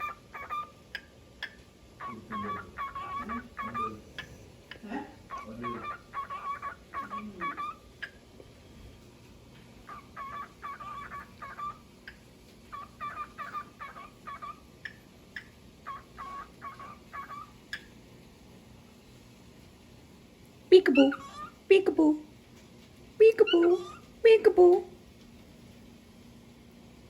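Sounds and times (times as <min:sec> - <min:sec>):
cockatiel chirping: 0:00.0 - 0:08.2, 0:09.8 - 0:17.9, 0:20.9 - 0:21.6.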